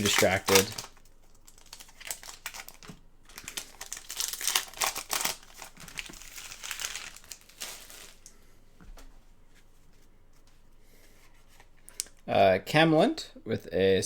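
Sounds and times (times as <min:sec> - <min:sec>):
wrapper crinkling: 0:00.0 - 0:08.3.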